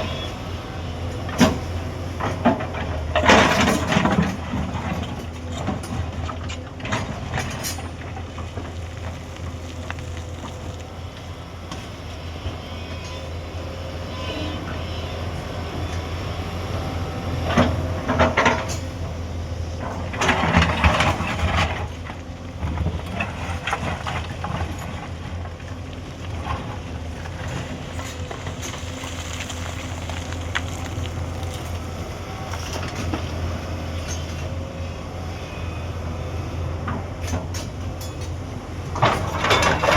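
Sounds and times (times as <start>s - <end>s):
excavator diesel engine running: 0.0s - 39.9s
scattered clatter: 39.0s - 39.9s.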